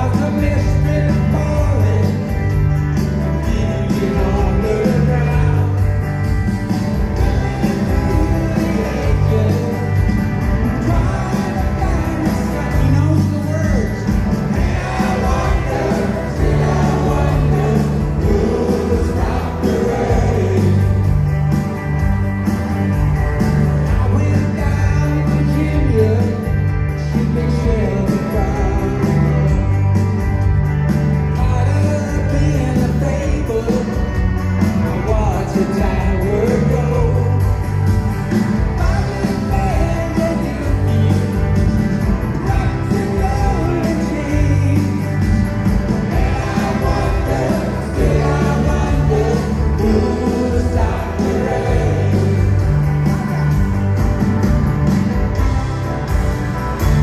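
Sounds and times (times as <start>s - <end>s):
man singing lead vocal: 0.0s - 2.3s, 3.4s - 5.8s, 7.2s - 10.0s, 10.6s - 21.1s, 23.9s - 29.4s, 31.4s - 34.0s, 34.9s - 37.4s, 38.8s - 41.2s, 42.4s - 45.2s, 46.1s - 52.8s
live rock band playing: 0.0s - 57.0s.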